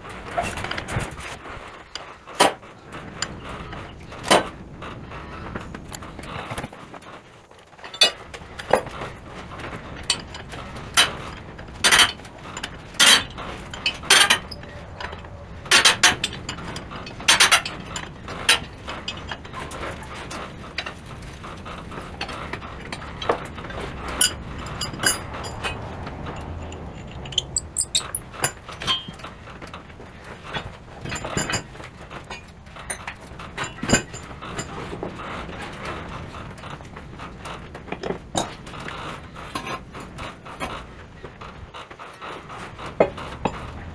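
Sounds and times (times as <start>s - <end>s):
metal tools clinking: 7.8s - 8.9s, 11.8s - 20.4s, 22.2s - 29.2s.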